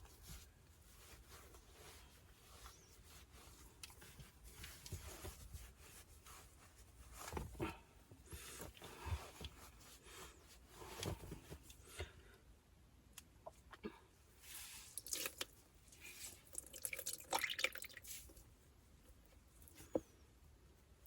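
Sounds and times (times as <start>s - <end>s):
faint rustling and scraping: 0.0s - 12.6s, 13.4s - 15.0s, 15.6s - 16.6s, 18.0s - 21.0s.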